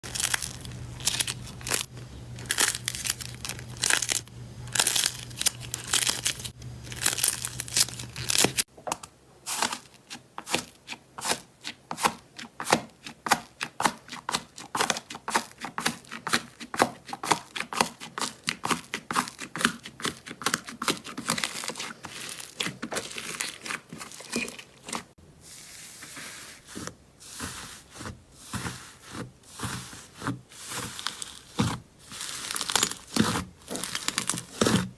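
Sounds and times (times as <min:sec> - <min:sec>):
slime crackling and popping: 0:00.0 - 0:08.7, 0:32.1 - 0:34.9.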